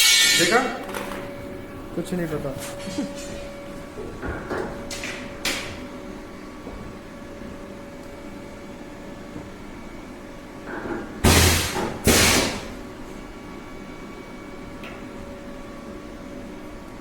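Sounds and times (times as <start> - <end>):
machinery humming: 0.0 - 10.6.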